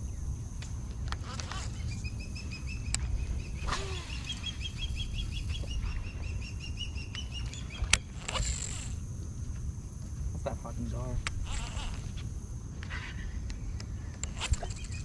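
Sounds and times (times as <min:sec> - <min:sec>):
fishing reel whir: 0:01.1 - 0:05.6, 0:07.2 - 0:09.1, 0:11.3 - 0:12.2, 0:14.2 - 0:15.0
bird chirping: 0:01.4 - 0:08.5, 0:13.6 - 0:15.0
fishing reel click: 0:07.9 - 0:09.0.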